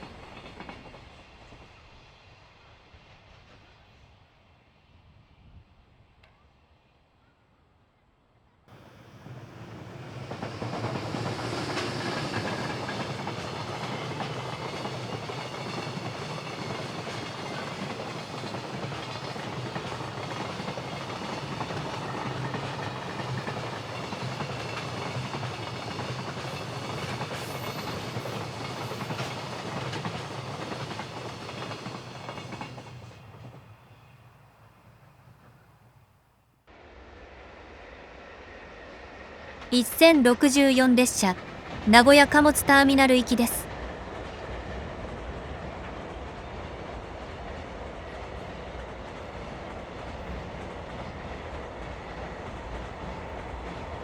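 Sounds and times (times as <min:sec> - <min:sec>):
freight train wagons rumbling: 0:08.7 - 0:15.7.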